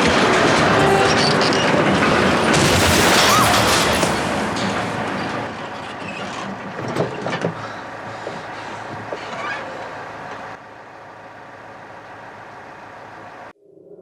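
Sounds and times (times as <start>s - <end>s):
debris knocking: 0.0s - 7.6s
tractor crashing into barn: 0.0s - 8.0s.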